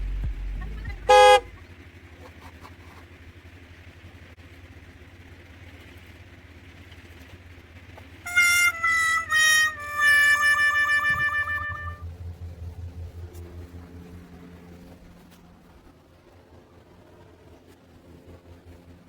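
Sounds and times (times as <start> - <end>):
short horn toots: 0.0 - 1.6, 8.3 - 12.0
faint low hum: 0.0 - 3.3, 8.3 - 19.0.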